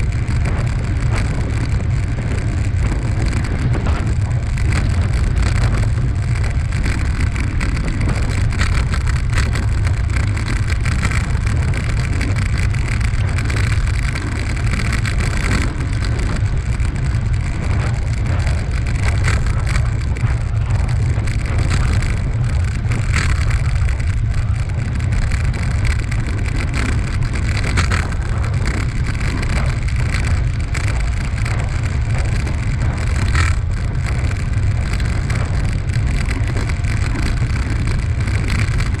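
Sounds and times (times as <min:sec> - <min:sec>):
wind rushing over microphone: 0:00.0 - 0:39.0.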